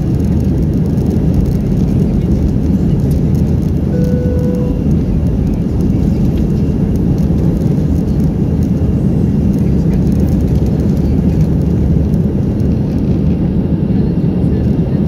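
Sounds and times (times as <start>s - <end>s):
aircraft cabin engine rumble: 0.0s - 15.0s
short steady tone: 3.9s - 5.1s.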